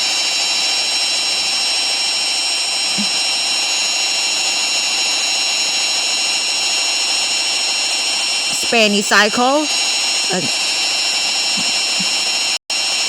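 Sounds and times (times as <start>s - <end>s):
washing machine spinning whine: 0.0s - 13.0s.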